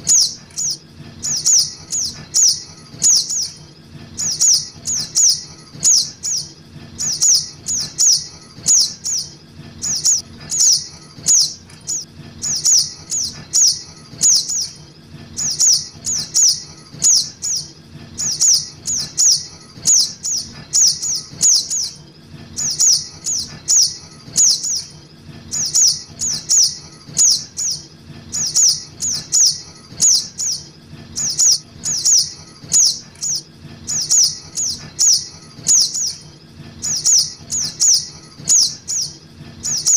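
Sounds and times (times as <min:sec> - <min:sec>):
bird high sharp chirps: 0:00.0 - 0:03.6, 0:04.2 - 0:14.8, 0:15.4 - 0:22.0, 0:22.6 - 0:24.9, 0:25.5 - 0:36.2, 0:36.8 - 0:39.9
faint low hum: 0:00.0 - 0:39.9.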